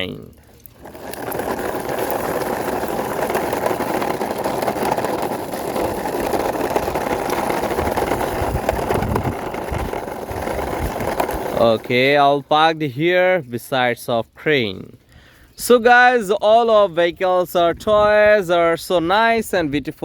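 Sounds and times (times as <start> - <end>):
toy car wheels rolling on concrete: 0.0 - 13.7.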